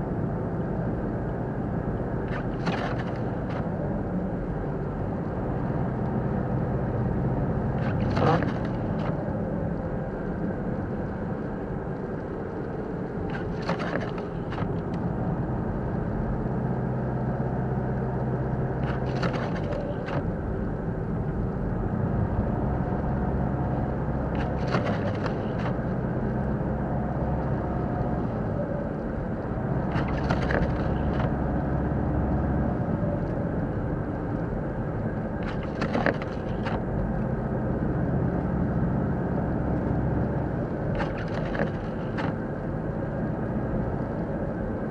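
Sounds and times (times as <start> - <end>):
car engine and road rumble: 0.0 - 44.9
wiper clicks and scrapes: 2.3 - 3.6, 7.8 - 9.2, 13.3 - 14.8, 18.8 - 20.2, 24.4 - 25.8, 29.9 - 31.3, 35.4 - 36.8, 40.9 - 42.4.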